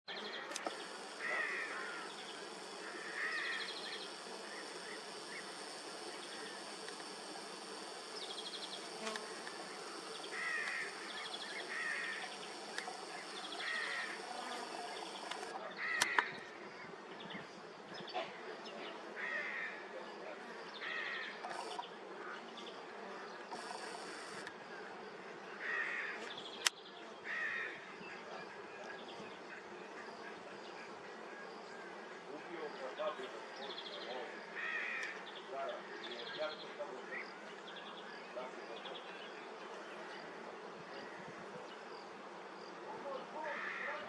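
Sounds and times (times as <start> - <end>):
insects chirping and buzzing: 0.5 - 16.2, 20.8 - 21.9, 23.5 - 24.6.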